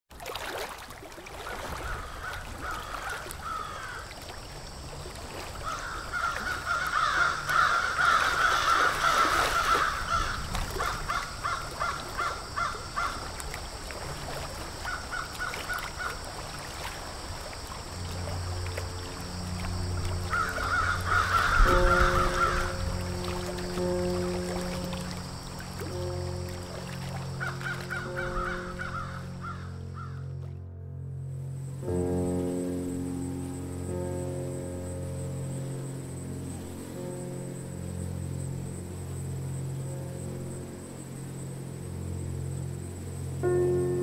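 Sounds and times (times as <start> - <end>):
low sustained music tones: 0.2 - 44.0
bird calls: 20.2 - 25.2, 25.8 - 30.2.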